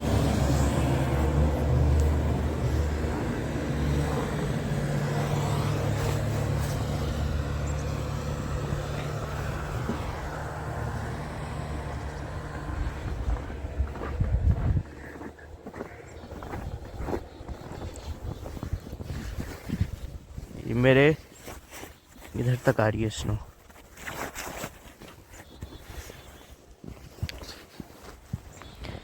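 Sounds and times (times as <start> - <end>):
rough uneven bumps: 0.0 - 20.1
vehicle engine rumble: 0.0 - 20.8
road noise: 0.0 - 23.5.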